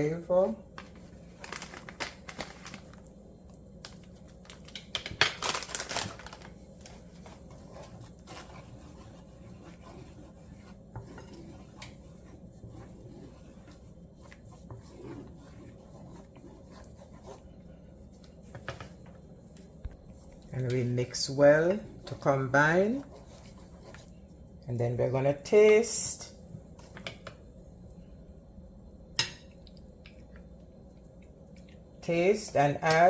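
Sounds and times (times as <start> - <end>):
spoon scraping in a pot: 6.8 - 19.2, 21.1 - 24.2.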